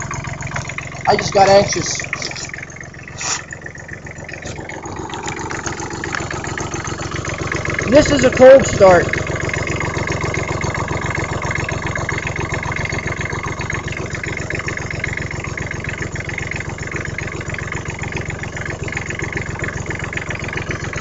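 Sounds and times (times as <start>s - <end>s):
small diesel engine running: 0.0s - 21.0s.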